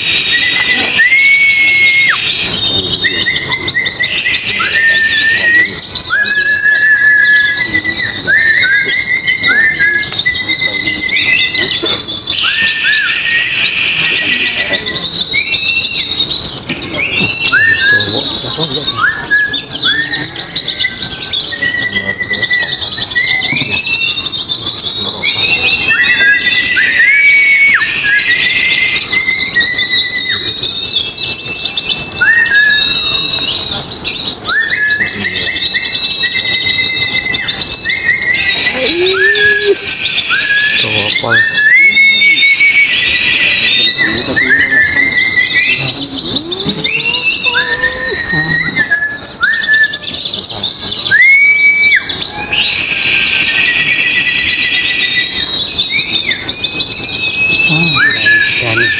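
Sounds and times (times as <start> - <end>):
birds twittering: 0.0 - 58.9
rising whistled bird notes: 0.0 - 58.9.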